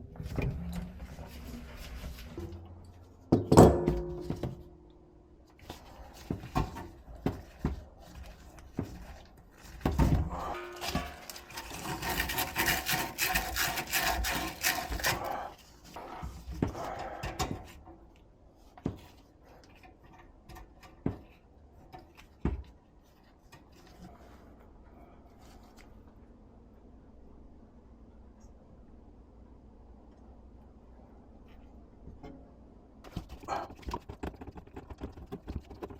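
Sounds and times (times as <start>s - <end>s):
rubbing and scraping strokes: 10.3s - 16.9s, 33.1s - 35.9s.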